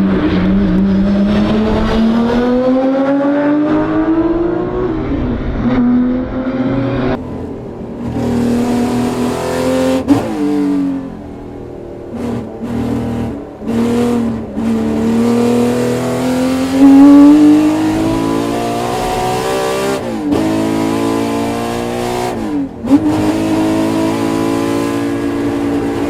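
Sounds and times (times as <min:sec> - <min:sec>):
car engine revving and accelerating: 0:00.0 - 0:26.0.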